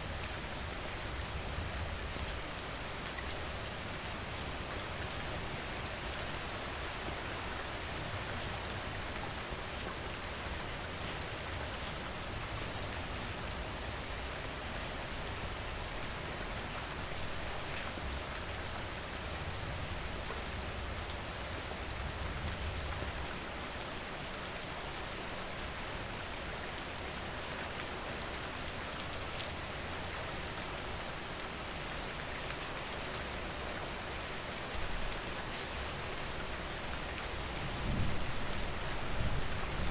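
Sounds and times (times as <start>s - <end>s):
raindrops ticking on surfaces: 0.2s - 39.9s
heavy rain falling: 19.0s - 39.9s.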